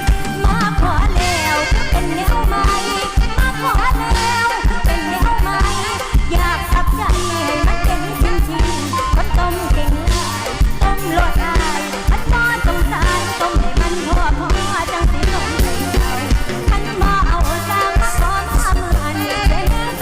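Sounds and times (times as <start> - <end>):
band music with drum beat: 0.0 - 20.0
pitch-bending melody: 0.0 - 20.0.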